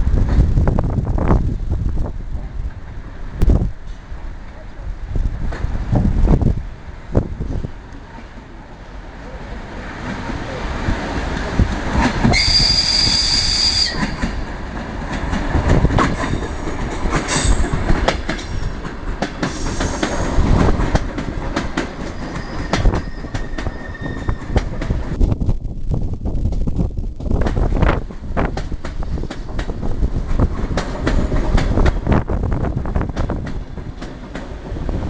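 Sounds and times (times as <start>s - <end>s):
train wheels clacking over joints: 11.4s - 25.1s, 27.4s - 32.1s
high squeal: 12.4s - 14.2s, 22.2s - 24.6s.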